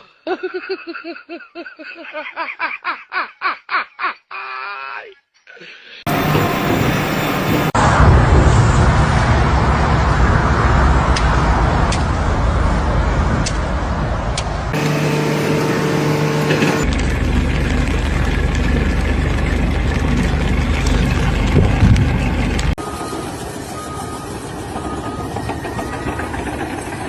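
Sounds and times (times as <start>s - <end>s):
loud engine roar: 6.1s - 13.6s, 14.7s - 22.8s.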